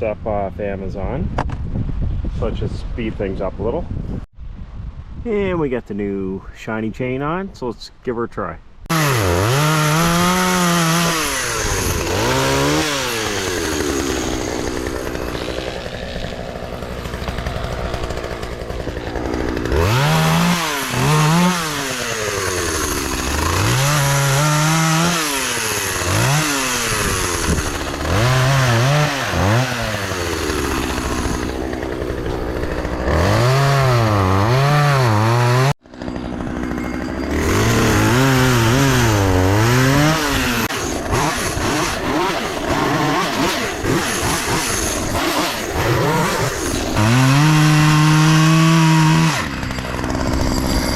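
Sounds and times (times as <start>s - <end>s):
chainsaw cutting wood: 8.9s - 50.9s.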